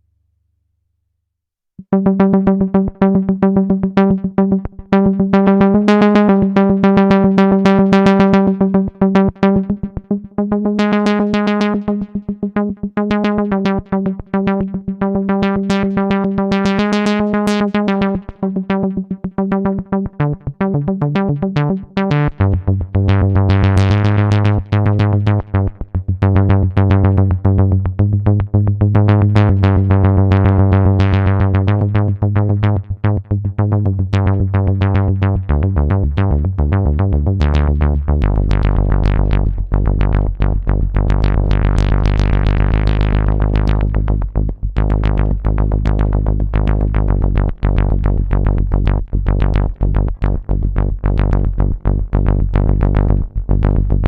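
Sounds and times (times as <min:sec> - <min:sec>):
synthesizer repeating sequence: 0:01.8 - 0:27.4
held synth bass notes: 0:01.8 - 0:54.0.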